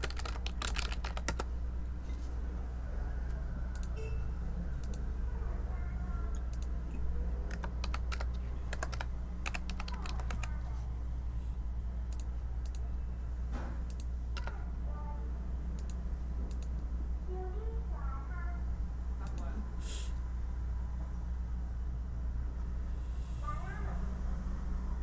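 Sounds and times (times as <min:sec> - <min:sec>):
computer keyboard typing: 0:00.0 - 0:01.5, 0:03.7 - 0:04.0, 0:06.4 - 0:10.6, 0:13.9 - 0:14.6
steady low hum: 0:00.0 - 0:25.0.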